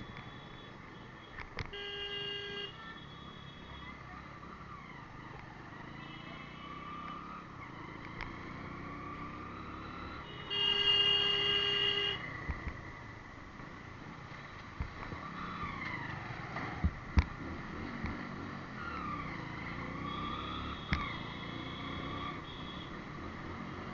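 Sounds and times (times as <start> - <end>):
vehicle horn honking: 1.7 - 3.6, 10.3 - 12.2
motorcycle engine: 14.9 - 23.9.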